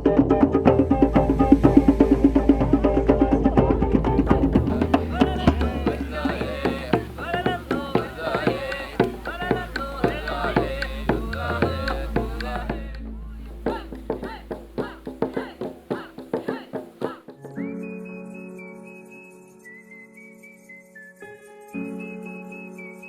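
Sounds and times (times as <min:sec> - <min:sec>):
hand-drum strokes: 0:00.0 - 0:17.5.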